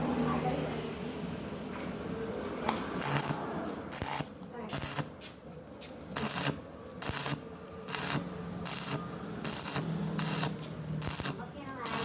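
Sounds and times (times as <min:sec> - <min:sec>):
welding arc crackling: 0:03.0 - 0:05.1, 0:06.1 - 0:12.0.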